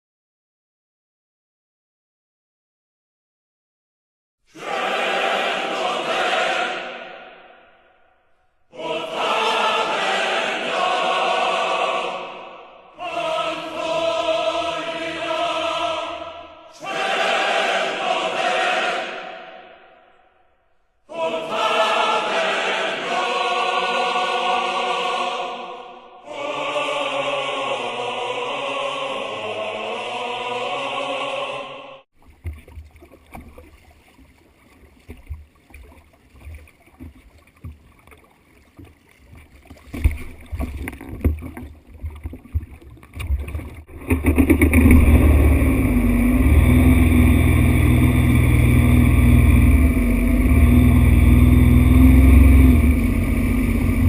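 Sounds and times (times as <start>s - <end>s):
choral music: 4.5s - 32.1s, 44.7s - 54.0s
low rumble: 44.0s - 54.0s.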